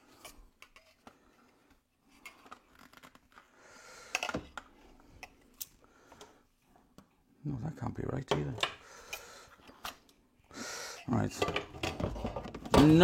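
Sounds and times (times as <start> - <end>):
plastic parts clicking and rubbing: 0.0 - 3.5.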